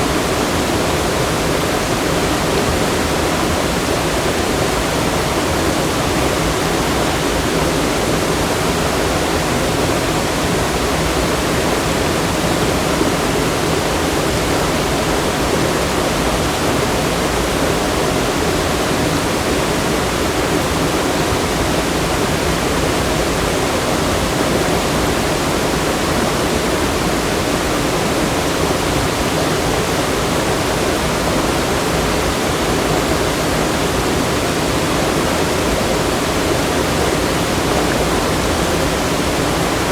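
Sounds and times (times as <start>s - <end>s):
fast-flowing water rushing: 0.0s - 39.9s.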